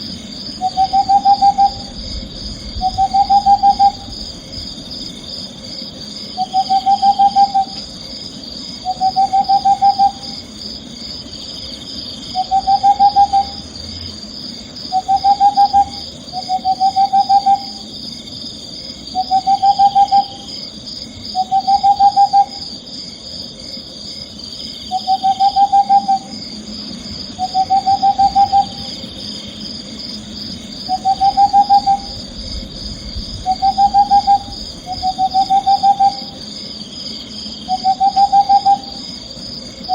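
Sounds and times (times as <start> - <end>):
owl trilled hoots: 0.5 - 4.5, 6.3 - 8.0, 8.8 - 10.6, 12.2 - 13.8, 14.9 - 17.9, 19.1 - 20.6, 21.3 - 22.8, 24.8 - 26.4, 27.3 - 29.2, 30.8 - 36.5, 37.6 - 39.9.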